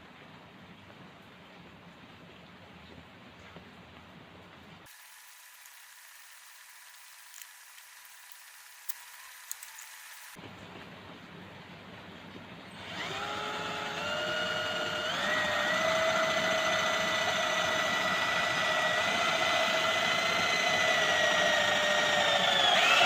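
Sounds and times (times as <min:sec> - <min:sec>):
electric drill motor whining: 0:04.9 - 0:10.4, 0:12.8 - 0:23.0.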